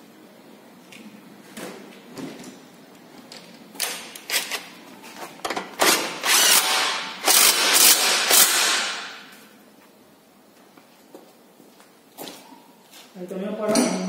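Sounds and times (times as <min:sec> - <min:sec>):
electric impact wrench hammering: 0:05.6 - 0:09.4.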